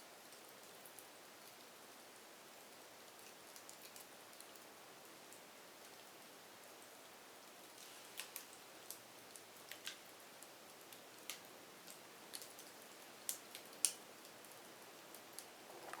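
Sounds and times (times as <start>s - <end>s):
faint steady hiss: 0.0s - 16.0s
firewood crackling and popping: 3.0s - 6.0s, 6.8s - 16.0s.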